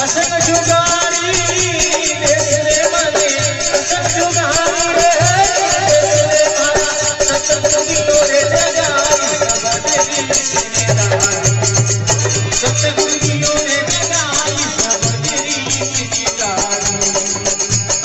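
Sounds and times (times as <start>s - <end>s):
jingling rattle percussion: 0.0s - 18.0s.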